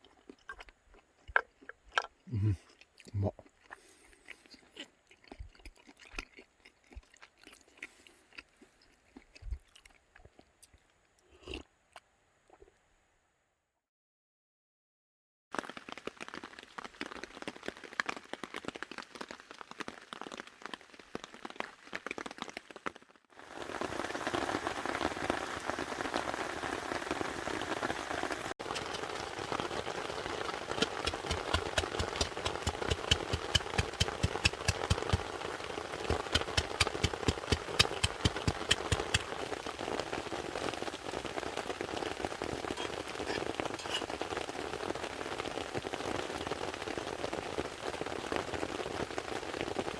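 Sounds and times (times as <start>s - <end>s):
rain pattering on a tarp: 15.5s - 49.9s.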